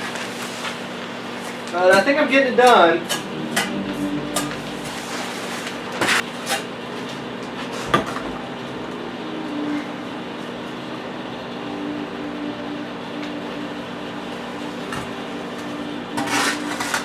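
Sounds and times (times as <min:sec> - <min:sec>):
low hum: 0:03.0 - 0:06.2, 0:07.0 - 0:17.0.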